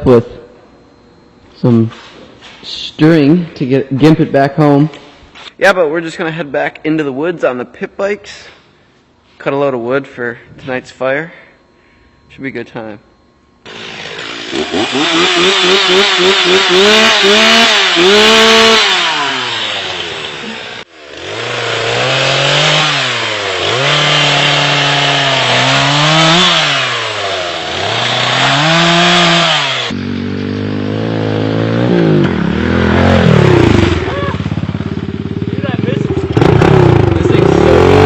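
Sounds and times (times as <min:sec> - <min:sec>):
chainsaw revving cutting wood: 0:13.7 - 0:30.8, 0:36.3 - 0:38.0.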